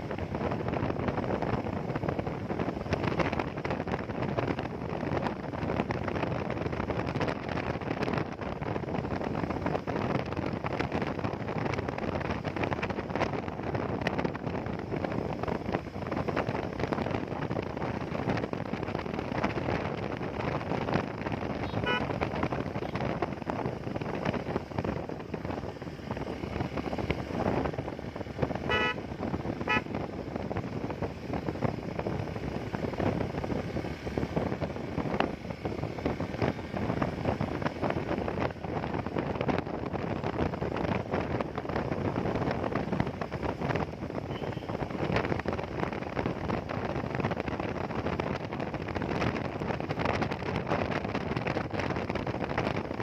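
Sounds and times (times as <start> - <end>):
motorcycle road noise: 0.0 - 53.0
wind rushing over microphone: 0.0 - 53.0
vehicle horn toots: 21.6 - 22.1, 28.6 - 29.0, 29.6 - 29.9, 44.3 - 44.8.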